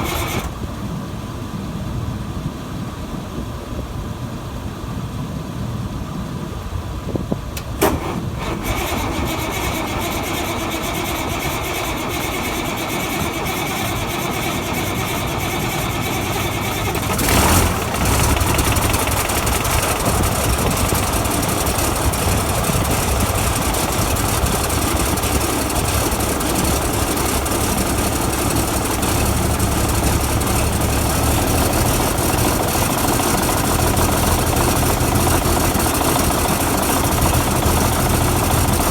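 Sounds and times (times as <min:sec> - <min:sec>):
tractor diesel engine running: 0:00.0 - 0:01.8, 0:07.5 - 0:38.9
loud engine burst: 0:07.7 - 0:38.9.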